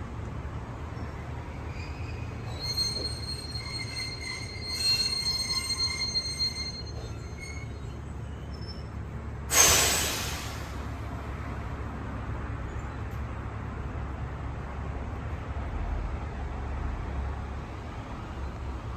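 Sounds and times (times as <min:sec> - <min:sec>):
train rumbling: 0:00.0 - 0:18.9
train wheels squealing on rails: 0:00.8 - 0:11.2
loud hiss: 0:09.5 - 0:11.0.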